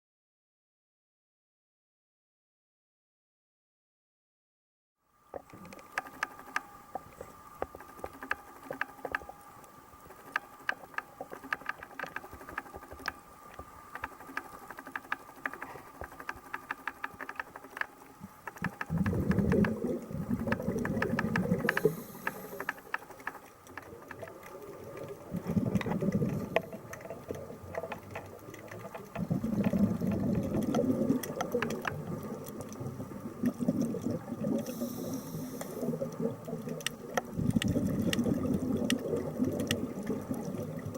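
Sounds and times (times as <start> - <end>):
faint steady hum: 5.0 - 40.9
scattered clicks: 5.4 - 32.8
diving regulator bubbly exhale: 18.6 - 22.8, 23.9 - 40.9.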